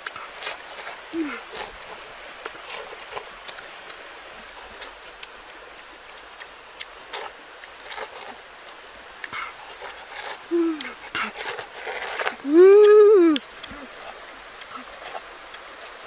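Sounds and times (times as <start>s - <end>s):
chewing crunches and smacks: 0.0s - 12.4s, 13.4s - 16.0s
person humming mm: 1.1s - 1.4s, 10.5s - 11.4s, 12.4s - 14.0s.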